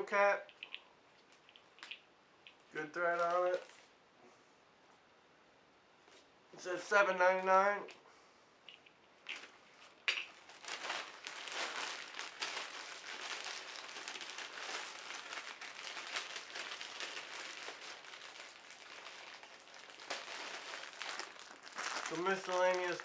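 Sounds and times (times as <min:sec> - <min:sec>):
plastic bag crinkling: 0:00.6 - 0:03.9, 0:09.2 - 0:23.0.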